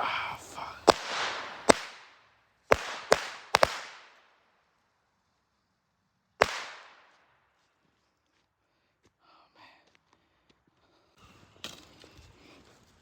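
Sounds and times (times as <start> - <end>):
firecracker bangs with echo: 0.0 - 4.4, 6.4 - 7.3.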